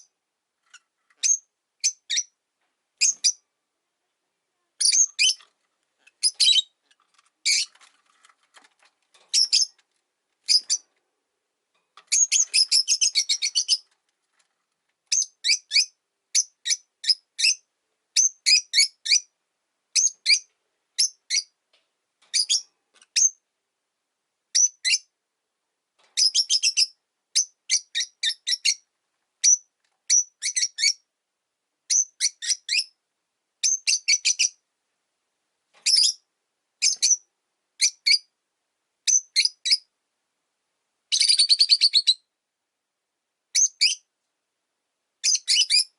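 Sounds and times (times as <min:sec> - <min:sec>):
lovebirds chirping: 0:00.0 - 0:02.4, 0:03.0 - 0:03.5, 0:04.8 - 0:07.9, 0:09.3 - 0:09.8, 0:10.4 - 0:10.9, 0:12.1 - 0:14.0, 0:15.1 - 0:19.3, 0:19.9 - 0:21.6, 0:22.3 - 0:23.4, 0:24.5 - 0:25.1, 0:26.2 - 0:31.0, 0:33.6 - 0:34.6, 0:35.8 - 0:38.3, 0:41.1 - 0:42.3, 0:43.5 - 0:44.1, 0:45.2 - 0:45.9.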